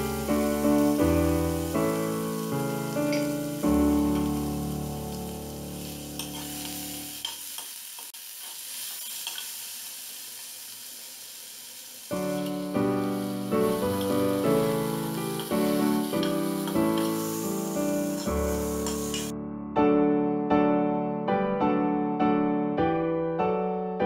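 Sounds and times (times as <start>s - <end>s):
piano background music: 0.0s - 7.2s, 12.1s - 24.0s
food sizzling in a pan: 0.0s - 19.3s
spoon clicking against pan: 6.2s - 6.5s, 7.2s - 8.1s, 9.0s - 9.5s.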